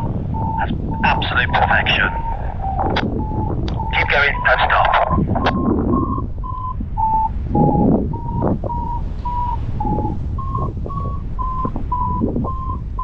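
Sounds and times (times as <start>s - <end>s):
variometer beeping: 0.0s - 13.0s
wind noise: 0.0s - 13.0s.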